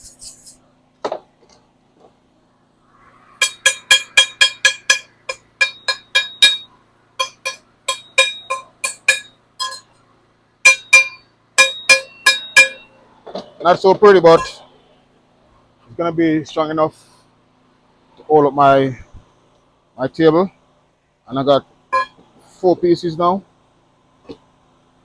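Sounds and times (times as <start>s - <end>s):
hammer striking steel: 3.4s - 10.0s, 10.6s - 13.0s, 22.0s - 22.2s.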